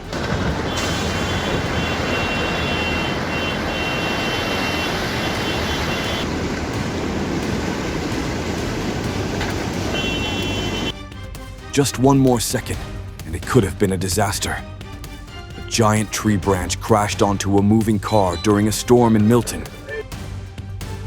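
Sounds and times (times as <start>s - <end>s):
heavy rain: 0.0s - 11.0s
floodwater rushing: 0.0s - 13.6s.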